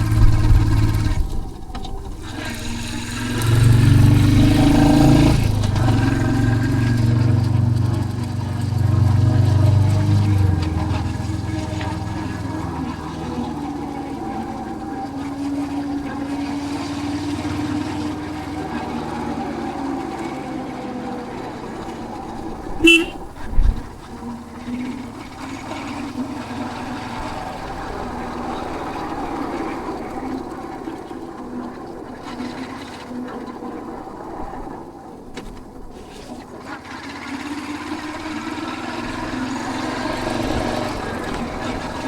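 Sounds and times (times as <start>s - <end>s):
motorcycle engine running: 0.0s - 31.0s
horn toot: 22.8s - 23.6s.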